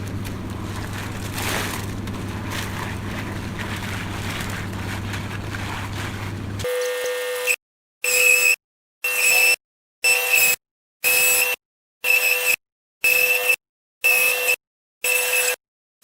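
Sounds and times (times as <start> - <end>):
concrete mixer engine humming: 0.0 - 6.6.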